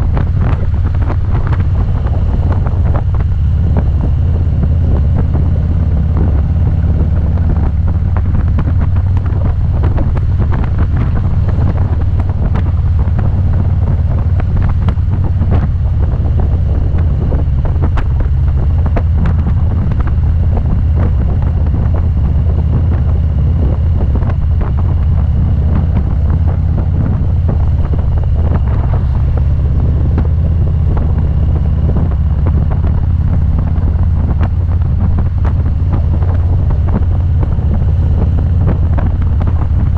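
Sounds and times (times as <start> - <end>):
motorcycle engine running: 0.0 - 39.9
wind rumbling on microphone: 0.0 - 39.9.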